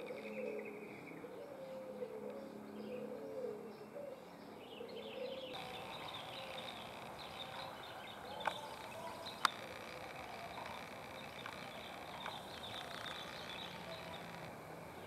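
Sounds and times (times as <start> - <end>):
bird warbling: 5.2 - 15.0
high bird chirps: 5.5 - 14.7.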